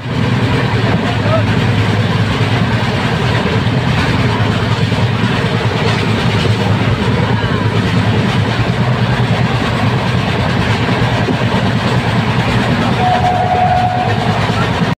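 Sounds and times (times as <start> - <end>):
train rumble heard from aboard: 0.0 - 15.0.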